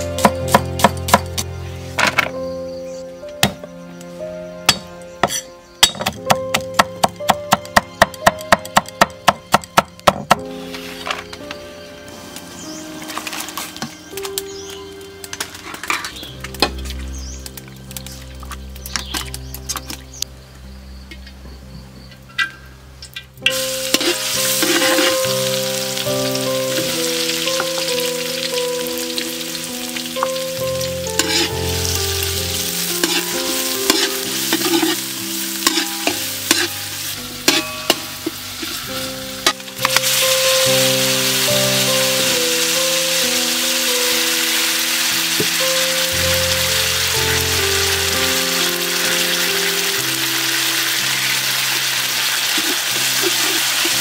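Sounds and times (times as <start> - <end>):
gentle instrumental melody: 0.0 - 54.0
garlic sizzling in hot oil: 23.4 - 54.0.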